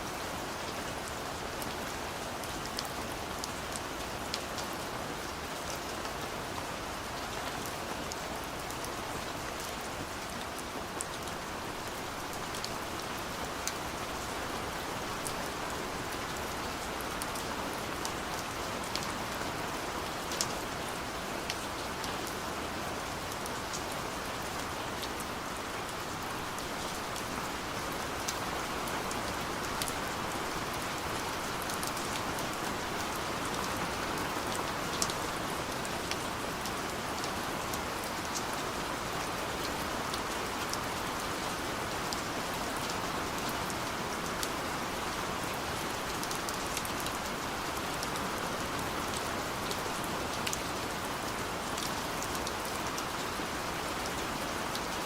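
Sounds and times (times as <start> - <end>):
steady rain: 0.0 - 55.0
raindrops ticking on a surface: 24.6 - 40.9.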